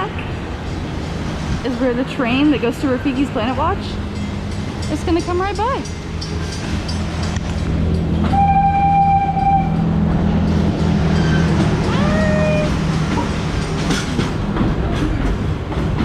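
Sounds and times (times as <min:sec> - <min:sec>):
steam locomotive whistle: 0:08.3 - 0:09.8.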